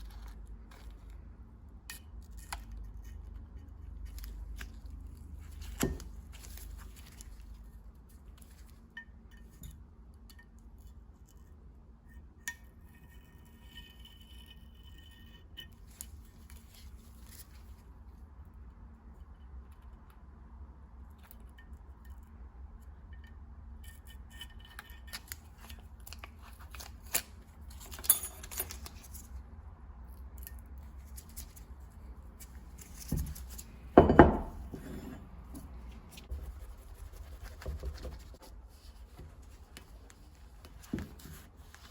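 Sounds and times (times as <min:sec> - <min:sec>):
small metal parts clinking: 0:27.7 - 0:29.2.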